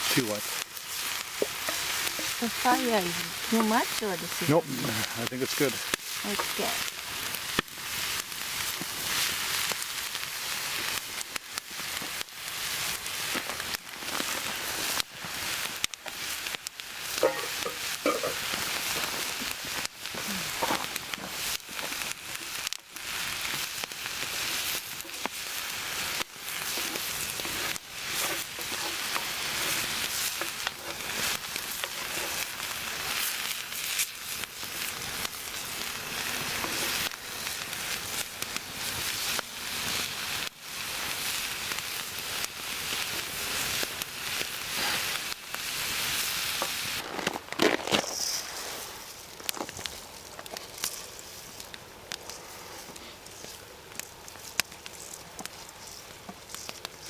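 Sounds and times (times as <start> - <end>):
food sizzling in a pan: 0.0 - 47.4, 48.0 - 51.7
crackles and pops: 0.0 - 57.0.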